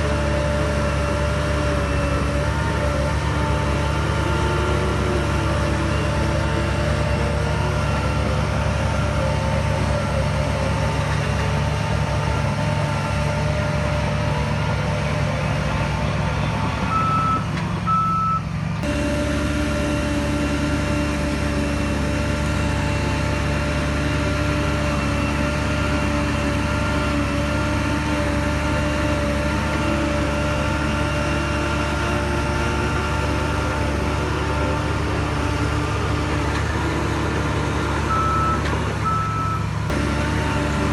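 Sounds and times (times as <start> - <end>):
heavy machinery engine running: 0.0 - 40.9
reversing alarm beeps: 16.9 - 18.4, 38.1 - 39.6.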